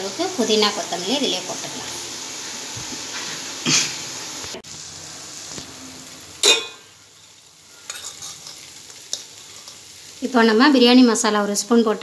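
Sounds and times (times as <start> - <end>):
masala frying in a pot: 0.0 - 12.0
metal ladle stirring: 7.9 - 9.8.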